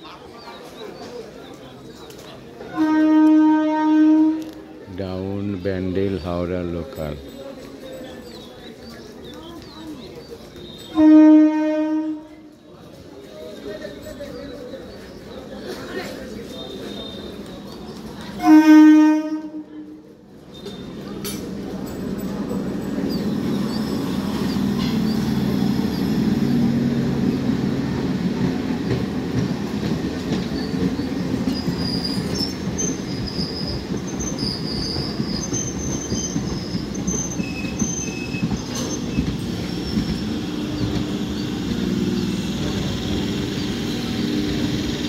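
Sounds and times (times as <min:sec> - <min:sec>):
train wheels rumbling on rails: 0:00.4 - 0:45.0
high-pitched wheel squeals: 0:30.6 - 0:42.4.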